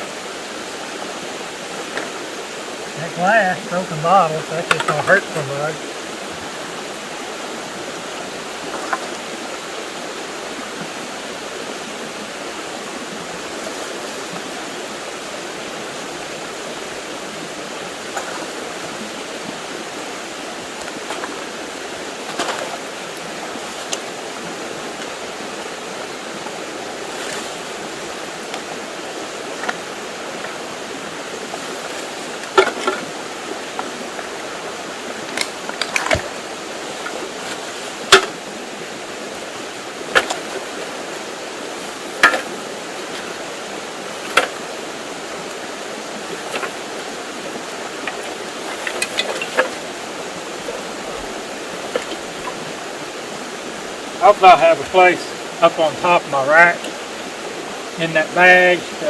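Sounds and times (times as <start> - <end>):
stream flowing: 0.0 - 59.0
glass and trash clinking: 38.1 - 38.4, 48.1 - 49.8.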